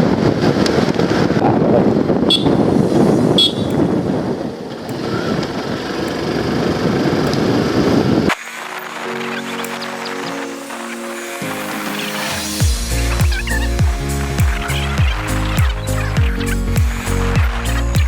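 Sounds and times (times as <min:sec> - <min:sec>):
motorcycle road noise: 0:00.0 - 0:08.4
wind rush on microphone: 0:00.0 - 0:08.4
horn beeps: 0:02.3 - 0:04.0
background music: 0:08.3 - 0:18.0.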